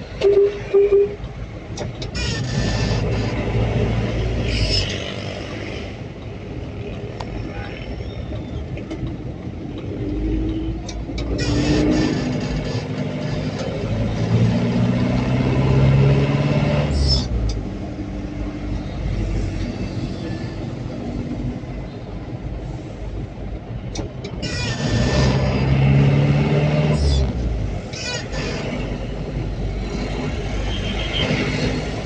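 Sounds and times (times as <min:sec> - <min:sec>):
road noise: 0:00.0 - 0:32.0
truck engine accelerating: 0:08.2 - 0:32.0.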